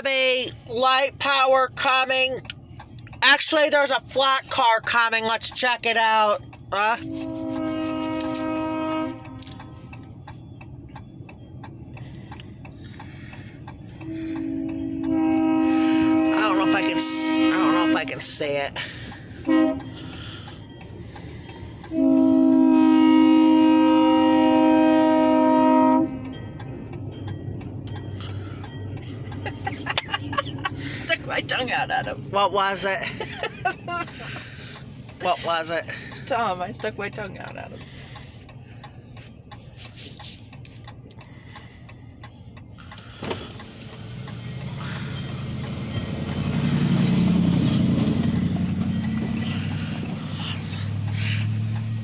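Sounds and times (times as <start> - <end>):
vehicle engine rumble: 0.0 - 52.0
locomotive air horn blast: 7.0 - 9.9, 13.9 - 18.2, 19.3 - 20.2, 21.8 - 26.3.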